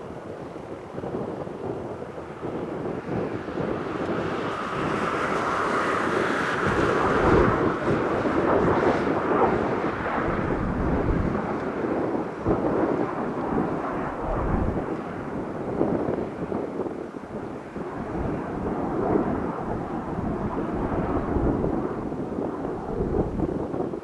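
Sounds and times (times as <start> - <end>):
wind buffeting microphone: 0.0 - 24.0
jet roar flying past: 2.9 - 24.0.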